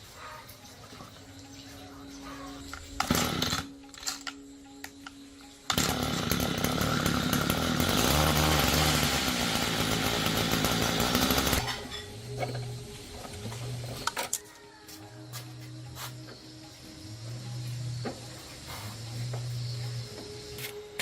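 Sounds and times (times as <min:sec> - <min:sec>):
chainsaw engine running: 0:03.0 - 0:03.8, 0:05.7 - 0:14.1, 0:17.9 - 0:20.1.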